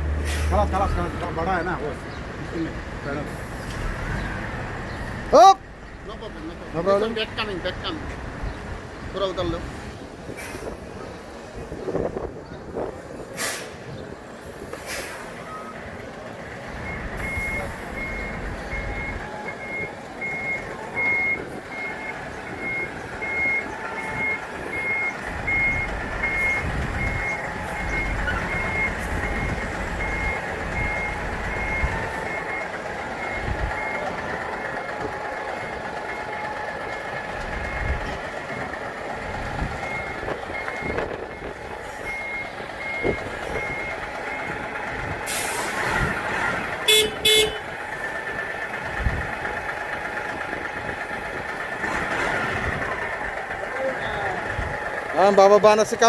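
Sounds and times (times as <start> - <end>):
truck engine running: 0.0 - 56.0
truck reversing alarm beeping: 14.9 - 56.0.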